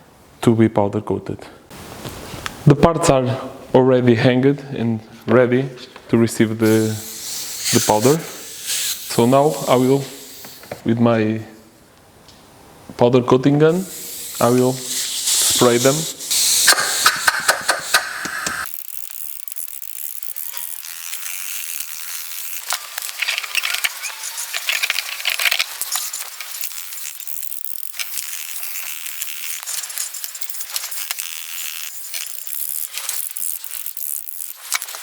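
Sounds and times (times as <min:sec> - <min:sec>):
spray gun hissing: 0:06.6 - 0:10.8, 0:13.7 - 0:18.7.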